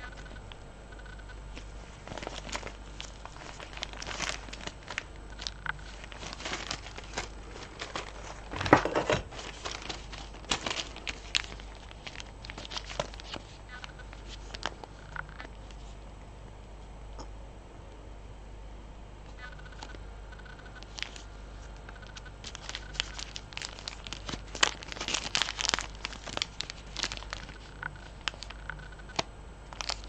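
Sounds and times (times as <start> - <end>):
packaging rustling: 1.6 - 16.0, 20.7 - 30.0.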